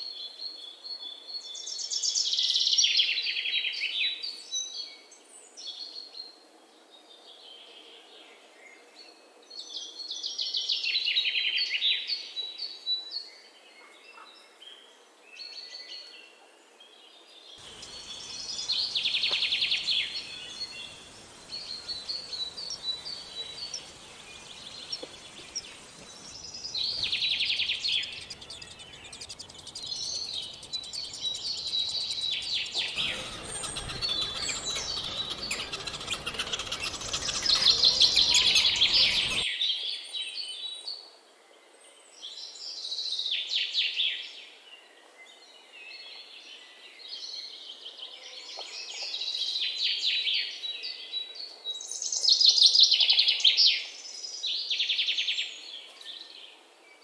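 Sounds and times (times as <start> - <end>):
background hiss: 17.6 - 39.4
songbirds chirping and trilling: 17.6 - 39.5.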